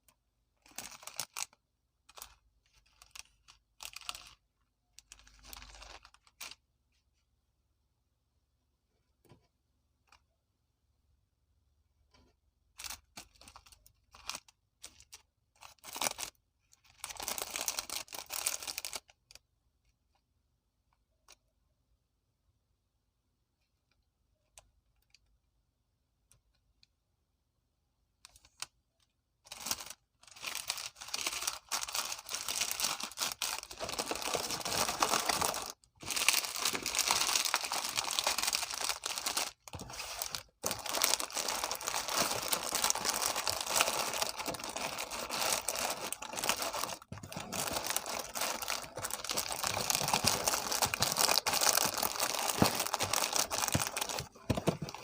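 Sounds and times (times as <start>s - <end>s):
snack packet crinkling and tearing: 29.5s - 55.0s.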